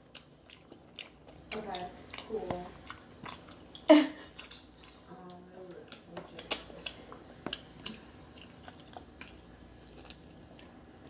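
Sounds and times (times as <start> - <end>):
wet chewing and lip smacks: 0.0 - 11.0.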